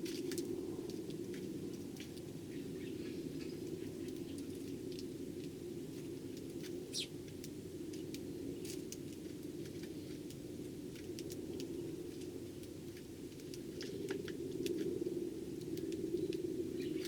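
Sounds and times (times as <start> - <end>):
sparrows chirping: 2.5 - 4.5, 6.9 - 7.2, 16.2 - 17.0.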